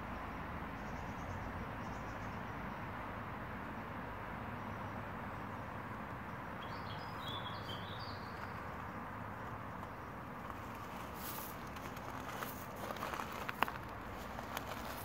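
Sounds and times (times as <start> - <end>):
outdoor background hiss: 0.0 - 15.0
small bird chirping: 6.6 - 8.8.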